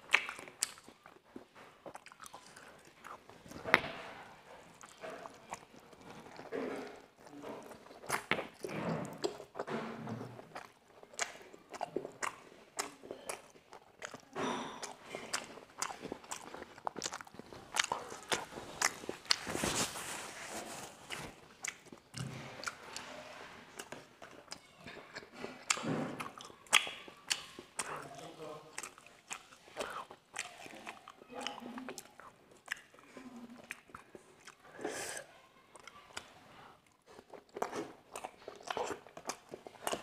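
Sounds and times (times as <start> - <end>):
chewing dumpling: 0.0 - 40.0.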